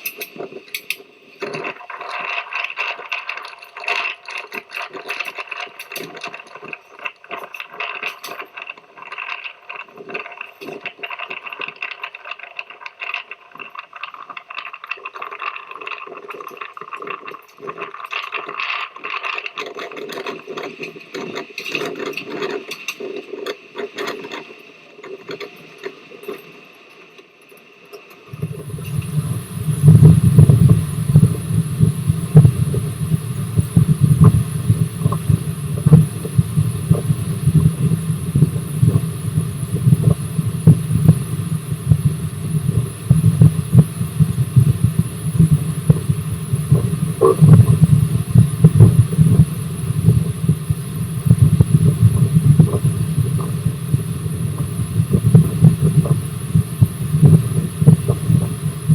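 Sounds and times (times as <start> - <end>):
steam train rumbling and knocking: 28.3 - 58.9.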